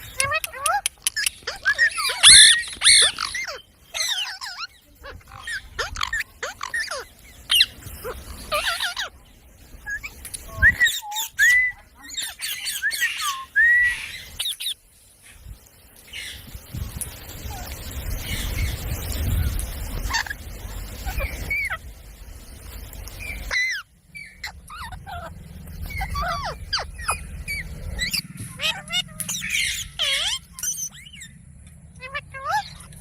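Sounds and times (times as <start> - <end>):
parrot chirping and squawking: 0.0 - 9.2, 9.8 - 14.8, 17.4 - 21.9, 23.2 - 33.0
parrot ringing calls: 0.1 - 7.7, 23.5 - 31.4
low rumble: 16.4 - 33.0.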